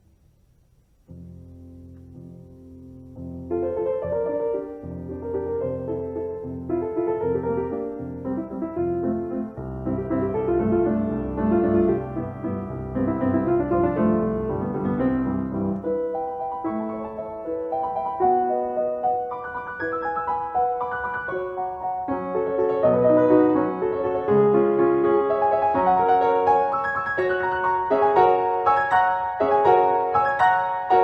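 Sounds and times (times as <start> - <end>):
piano music: 1.0 - 31.0.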